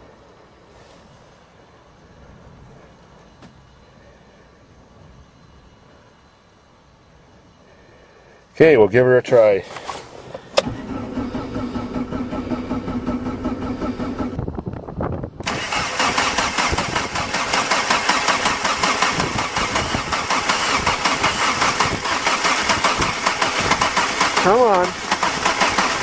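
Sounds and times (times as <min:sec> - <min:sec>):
diesel engine cranking: 0:09.6 - 0:14.6, 0:15.4 - 0:26.0.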